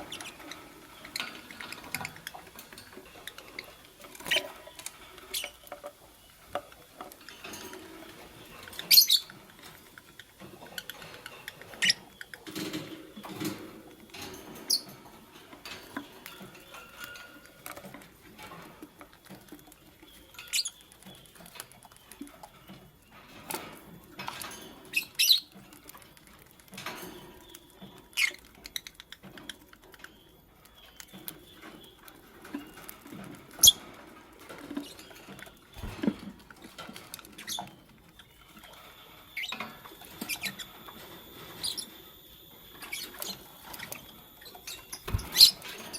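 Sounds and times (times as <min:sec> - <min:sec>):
lovebirds chirping: 0:00.0 - 0:13.3, 0:27.4 - 0:45.9
scratching and rustling: 0:00.0 - 0:30.2, 0:31.0 - 0:45.9.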